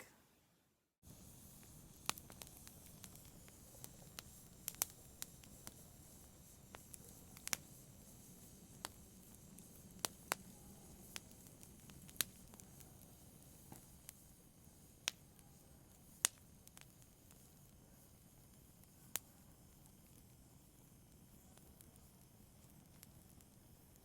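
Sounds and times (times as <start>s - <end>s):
faint low hiss: 0.0s - 24.0s
fire crackling and popping: 1.0s - 24.0s.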